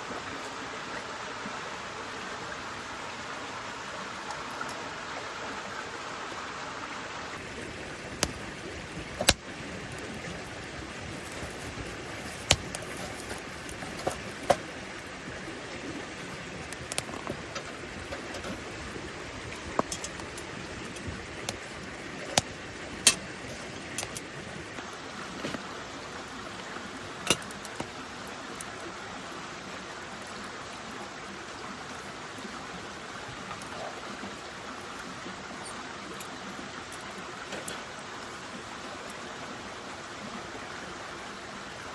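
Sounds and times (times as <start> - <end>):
steady rain hiss: 0.0 - 41.9
sharp clicks and pops: 7.8 - 15.1, 16.2 - 23.3, 23.9 - 24.9.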